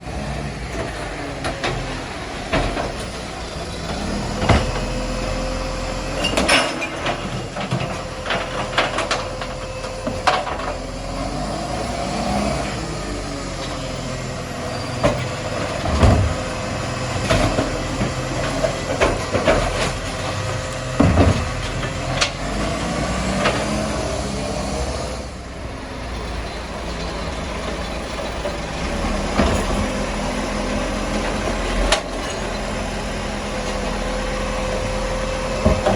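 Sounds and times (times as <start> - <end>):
garbage truck engine drone: 0.0 - 35.9
sharp knocks and bangs: 20.9 - 22.5.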